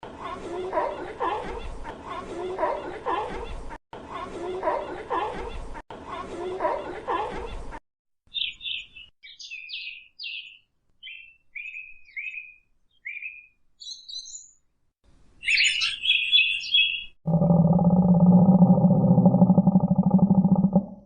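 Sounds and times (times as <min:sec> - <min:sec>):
small bird chirping: 0:08.3 - 0:14.6, 0:15.4 - 0:17.2.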